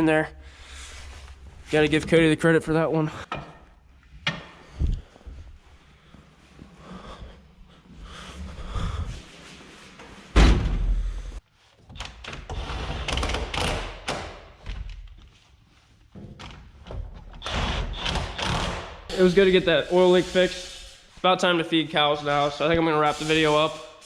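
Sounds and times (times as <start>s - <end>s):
irregular knocking and rattling: 3.3s - 4.8s.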